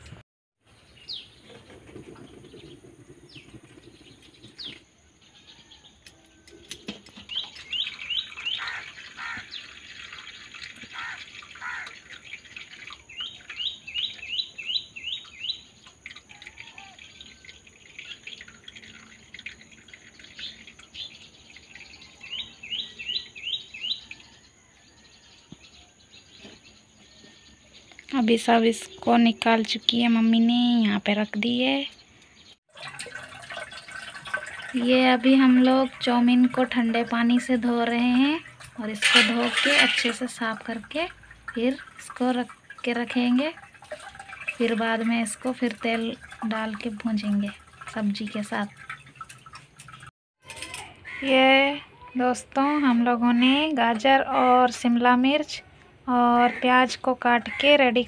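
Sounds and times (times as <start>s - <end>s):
bird chirping: 0.7s - 6.0s, 7.2s - 9.8s, 12.2s - 28.1s.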